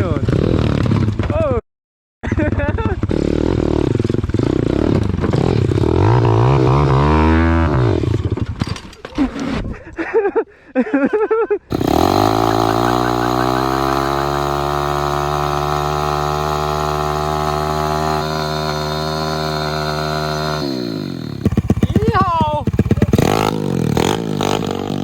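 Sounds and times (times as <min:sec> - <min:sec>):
pit bike engine revving: 0:02.3 - 0:08.6, 0:11.7 - 0:25.0
tyre spinning: 0:19.6 - 0:23.2.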